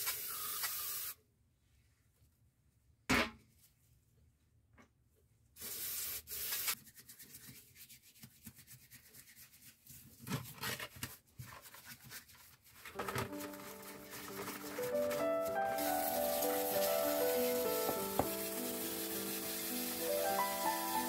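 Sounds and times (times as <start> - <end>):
rubbing and wiping of parts: 11.3 - 21.0
loud hiss: 14.8 - 21.0.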